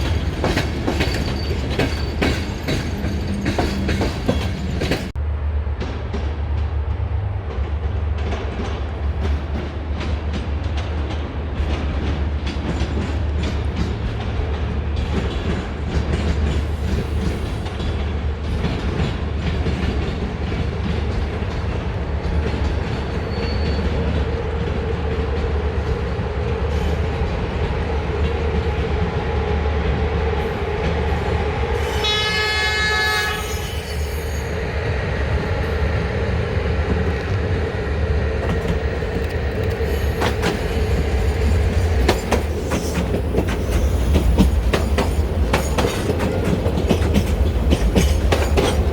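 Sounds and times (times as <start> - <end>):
wheels clicking over rail joints: 0.0 - 5.2, 38.3 - 48.9
train rumbling: 0.0 - 48.9
train horn: 31.8 - 34.5.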